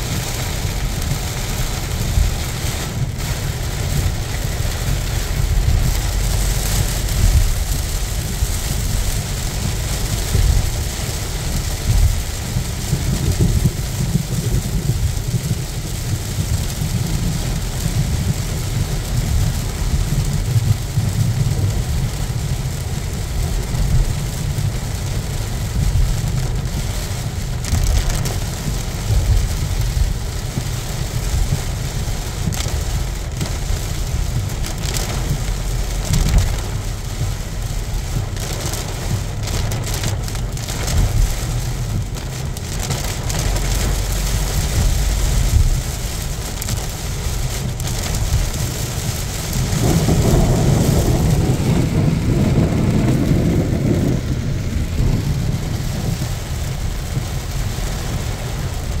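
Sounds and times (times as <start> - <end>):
heavy rain on a car: 0.0 - 59.0
road and engine rumble: 0.0 - 59.0
loud low rumble: 3.0 - 20.8, 43.4 - 59.0.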